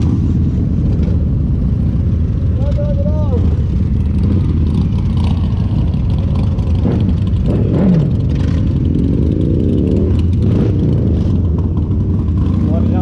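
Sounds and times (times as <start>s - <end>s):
motorcycle engines rumbling: 0.0s - 13.0s
motorcycle engine revving: 3.2s - 13.0s.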